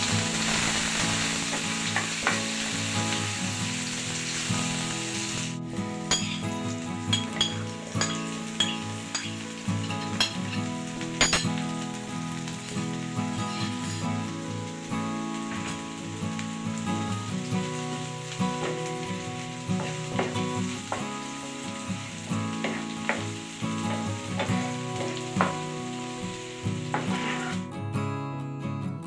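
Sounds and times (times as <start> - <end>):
food sizzling in frying pan: 0.0 - 27.7
background guitar music: 0.0 - 29.0
utensil scraping pan: 22.6 - 27.6.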